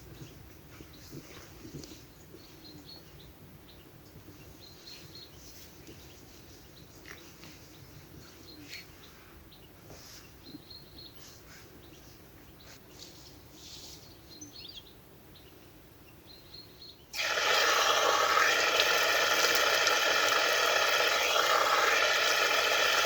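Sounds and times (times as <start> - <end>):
small birds chirping: 0.0 - 17.2.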